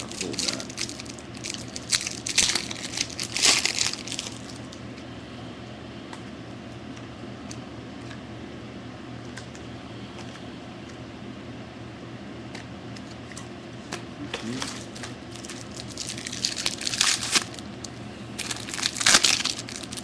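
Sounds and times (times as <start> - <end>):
wrapper crinkling and tearing: 0.0 - 4.8, 14.5 - 17.6, 18.4 - 20.0.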